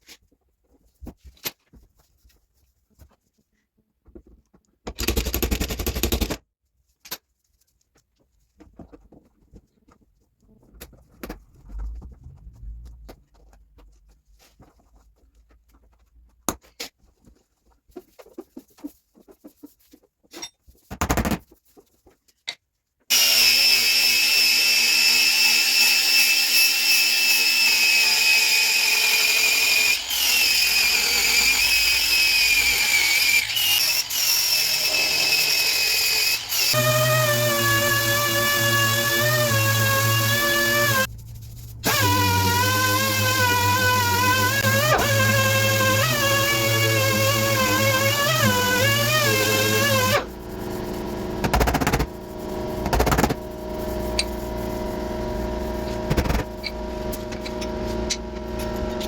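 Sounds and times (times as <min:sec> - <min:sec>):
power tool bursts and whine: 0:23.1 - 0:41.1, 0:41.8 - 0:59.0.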